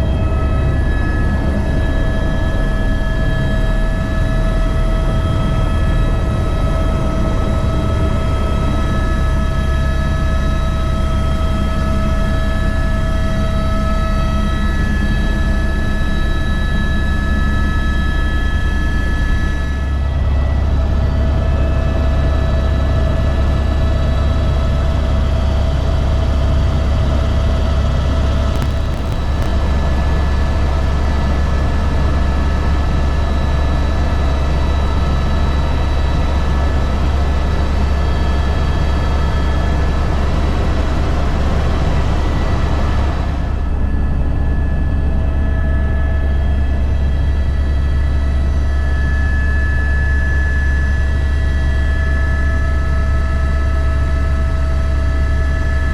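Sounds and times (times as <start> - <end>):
helicopter rotor drone: 0.0 - 55.9
turbine whine: 0.0 - 55.9.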